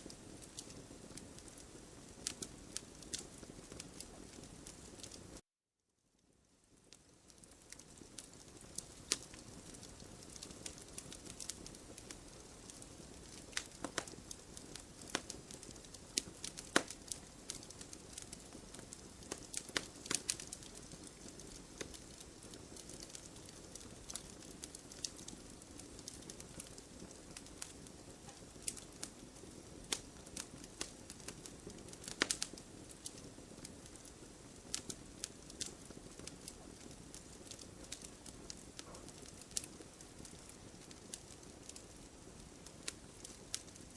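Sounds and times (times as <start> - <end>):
wood fire crackling: 0.0 - 5.4, 6.2 - 43.9
flames rushing: 7.7 - 43.8.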